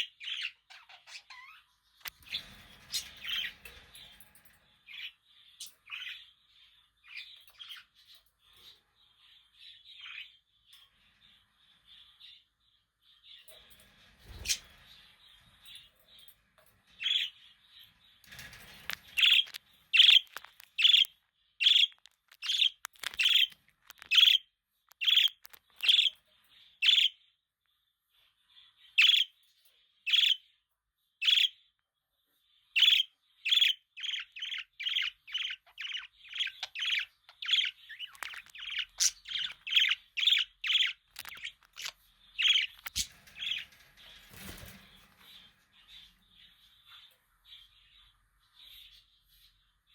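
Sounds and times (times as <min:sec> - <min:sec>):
budgerigar chirping: 0:20.0 - 0:24.4, 0:25.0 - 0:26.2, 0:26.8 - 0:27.2, 0:32.8 - 0:43.6.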